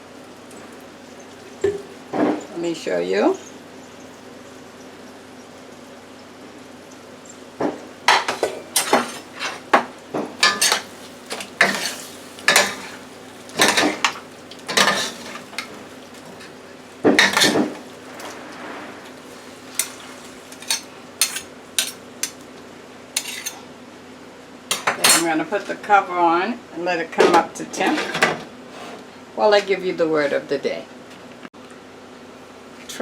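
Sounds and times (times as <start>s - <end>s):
utensil scraping frying pan: 8.1s - 22.4s, 23.2s - 23.6s.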